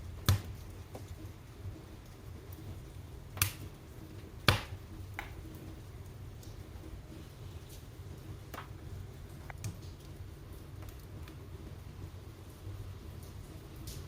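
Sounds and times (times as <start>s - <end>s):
wood fire rumbling and crackling: 0.0s - 14.0s
sharp fire pops: 0.1s - 1.2s, 3.3s - 3.8s, 4.4s - 5.4s.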